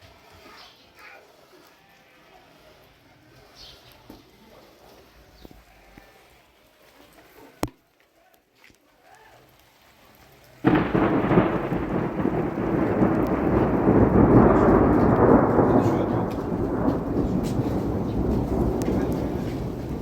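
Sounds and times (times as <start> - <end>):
rain: 8.9 - 20.0
thunder clap and rumble: 10.6 - 20.0.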